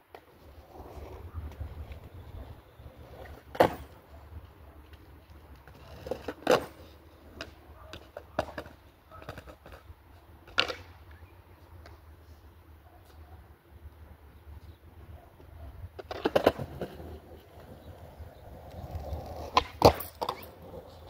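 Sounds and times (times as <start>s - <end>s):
skateboard clacking on concrete: 0.1s - 11.2s, 15.4s - 21.0s.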